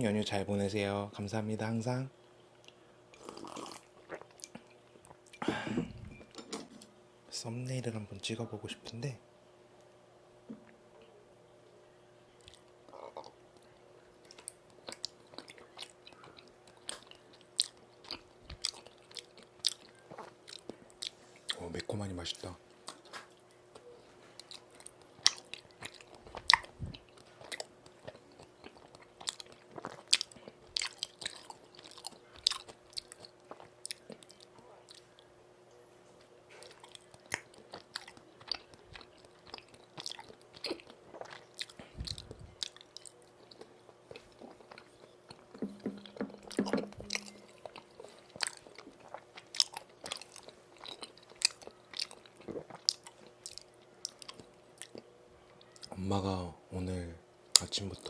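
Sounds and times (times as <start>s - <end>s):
person chewing with mouth smacks: 2.6s - 5.4s, 12.4s - 21.6s, 22.8s - 35.3s, 36.2s - 55.9s.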